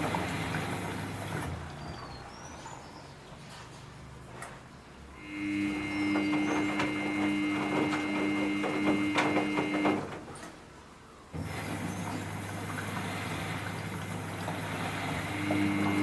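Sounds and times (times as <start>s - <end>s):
rush of water: 0.0s - 1.8s, 11.4s - 16.0s
washing machine motor hum: 0.0s - 3.0s, 5.0s - 10.7s, 11.3s - 16.0s
washing machine clicks and knocks: 6.0s - 10.6s.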